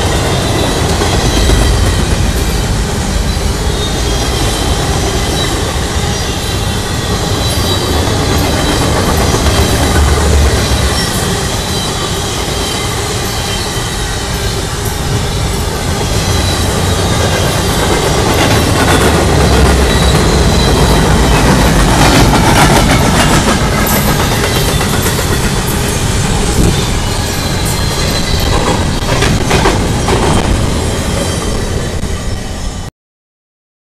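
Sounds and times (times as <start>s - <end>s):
clickety-clack over rail joints: 0.0s - 32.0s
thin high wheel squeal: 0.0s - 32.8s
train wheels rumbling on rail: 0.0s - 32.9s.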